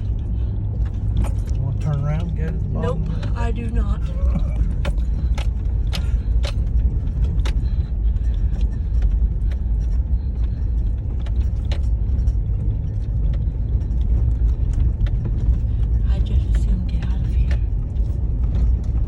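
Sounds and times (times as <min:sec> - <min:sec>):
engine and tyre rumble: 0:00.0 - 0:19.0
rattling clicks and knocks: 0:00.0 - 0:19.0.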